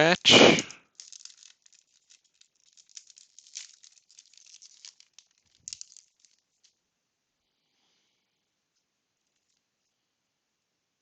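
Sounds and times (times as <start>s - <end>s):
card pack wrapper rustling: 0.4s - 6.8s.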